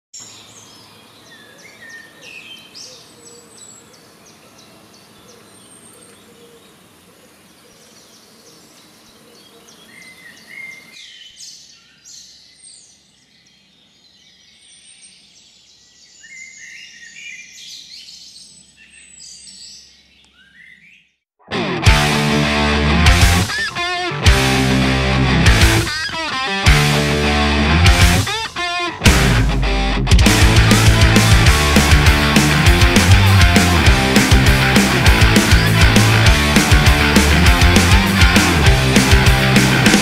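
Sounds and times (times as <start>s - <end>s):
faint background noise: 0.2s - 16.1s
small birds chirping: 0.2s - 21.2s, 30.4s - 40.0s.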